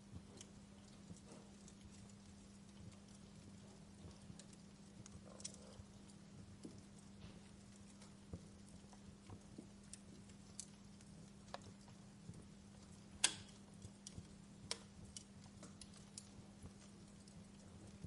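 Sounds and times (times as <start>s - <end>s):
steady low hum: 0.0s - 18.0s
wood fire crackling: 0.0s - 18.0s.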